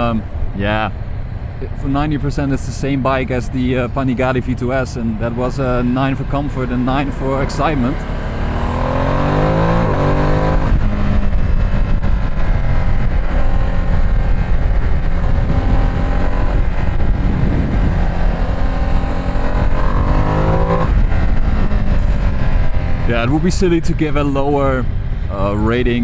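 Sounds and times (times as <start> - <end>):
motorcycle engine revving: 5.2 - 26.0.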